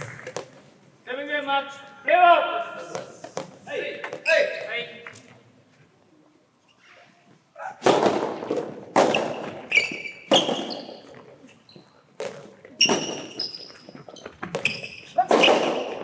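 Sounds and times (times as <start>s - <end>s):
tennis ball struck by rackets: 0.0s - 0.6s, 2.9s - 4.2s, 7.8s - 11.3s, 14.4s - 16.0s
ball bouncing on indoor court: 0.0s - 0.7s, 2.8s - 4.7s, 7.8s - 16.0s
shoes squeaking: 0.0s - 0.9s, 2.8s - 5.5s, 8.6s - 16.0s.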